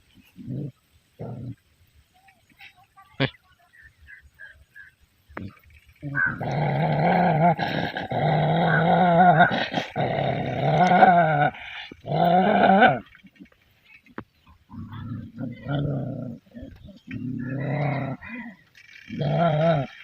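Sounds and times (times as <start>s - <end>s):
dog growling: 6.0s - 13.0s, 14.7s - 20.0s.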